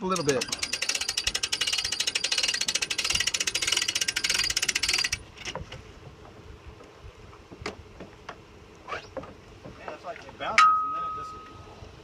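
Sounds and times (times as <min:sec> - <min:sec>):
hand winch ratcheting: 0:00.0 - 0:05.6.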